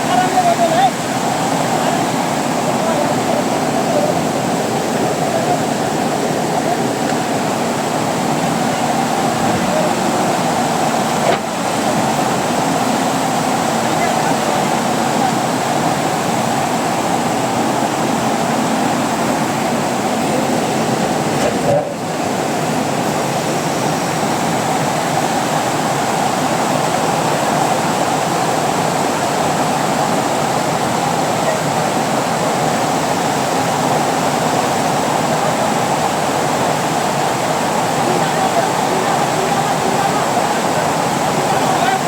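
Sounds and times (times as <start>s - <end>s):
floodwater rushing: 0.0s - 42.0s.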